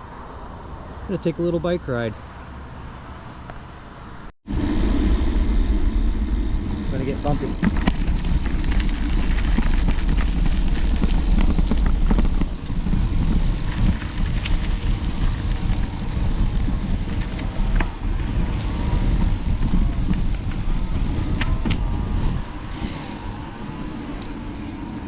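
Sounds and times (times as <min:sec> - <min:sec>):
wind buffeting microphone: 0:04.4 - 0:25.0
bicycle knocks and rattles: 0:07.0 - 0:25.0.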